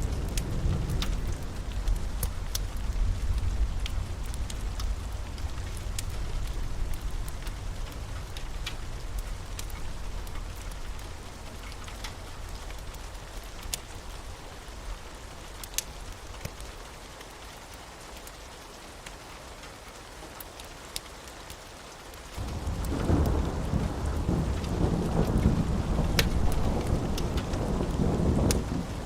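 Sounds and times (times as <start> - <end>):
thunder rumbling: 0.0 - 13.6, 22.4 - 29.0
sharp drip ticks: 0.0 - 14.2, 15.5 - 21.7, 22.3 - 28.6
steady rain: 0.0 - 29.0.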